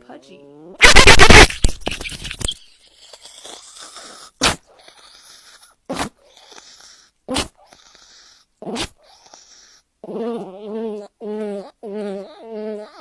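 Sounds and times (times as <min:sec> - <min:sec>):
dog sneezing: 0:00.8 - 0:01.7, 0:04.4 - 0:04.6, 0:05.9 - 0:06.2, 0:07.3 - 0:07.7, 0:08.6 - 0:09.0.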